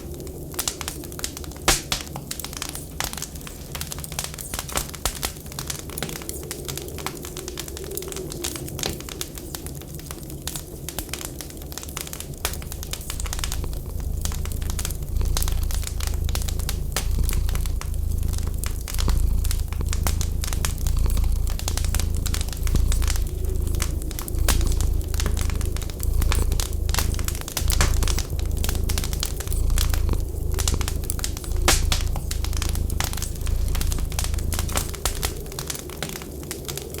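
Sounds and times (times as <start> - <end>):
wood fire crackling: 0.0 - 37.0
low pulsing rumble: 12.2 - 36.9.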